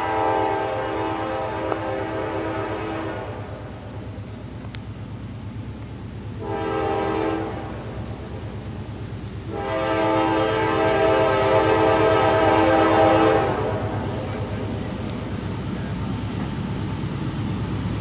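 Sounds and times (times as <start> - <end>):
locomotive air horn blasts: 0.0 - 3.6, 6.4 - 7.9, 9.5 - 14.2
locomotive engine rumbling: 0.0 - 18.0.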